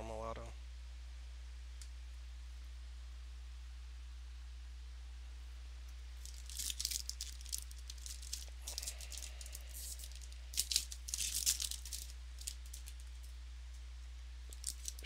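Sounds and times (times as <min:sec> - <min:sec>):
steady low hum: 0:00.0 - 0:15.0
trading cards rustling and flicking: 0:06.2 - 0:13.3, 0:14.5 - 0:15.0.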